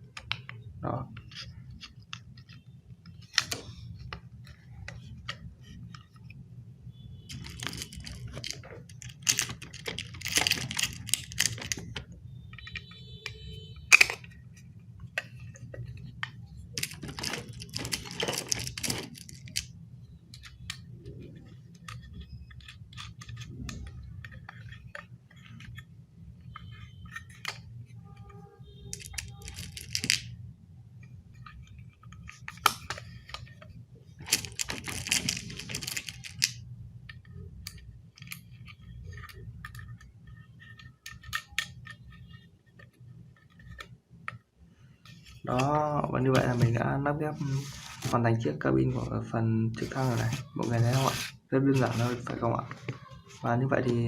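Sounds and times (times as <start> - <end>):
plastic pieces clicking and rattling: 7.3 - 14.4, 15.0 - 25.9, 28.9 - 30.4, 31.4 - 33.6, 34.2 - 42.4.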